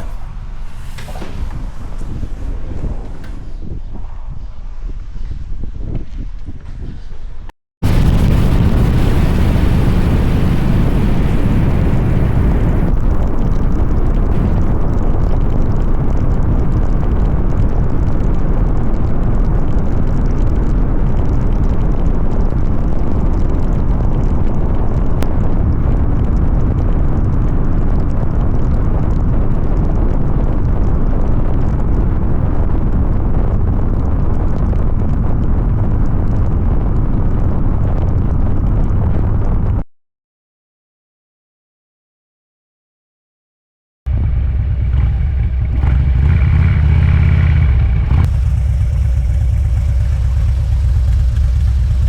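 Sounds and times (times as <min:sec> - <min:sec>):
motorcycle road rumble: 0:00.0 - 0:39.8, 0:44.1 - 0:52.0
wind noise: 0:00.0 - 0:39.9, 0:44.1 - 0:52.0.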